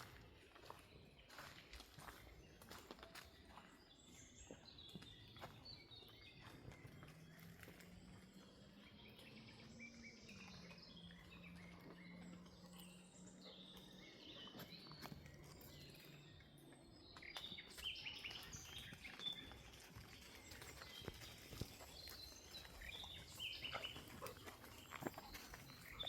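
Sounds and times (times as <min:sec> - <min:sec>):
rustling steps on forest floor: 0:00.0 - 0:03.7
birdsong chirps: 0:00.0 - 0:26.0.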